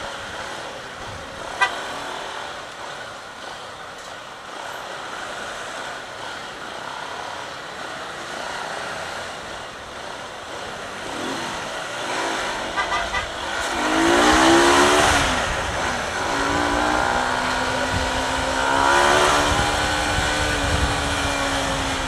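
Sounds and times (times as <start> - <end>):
motorcycle road noise: 0.0 - 22.0
horn toot: 1.5 - 2.3, 12.1 - 15.6.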